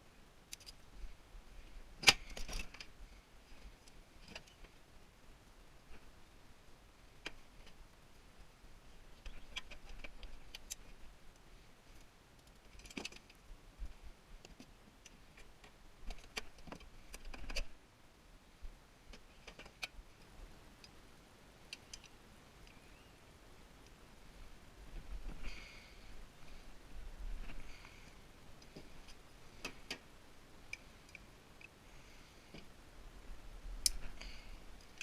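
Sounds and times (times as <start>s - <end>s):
light clicks of parts: 0.4s - 1.1s, 2.0s - 4.8s, 7.2s - 7.8s, 9.1s - 17.8s, 19.1s - 21.0s, 21.6s - 23.0s, 27.4s - 31.8s, 33.8s - 35.0s.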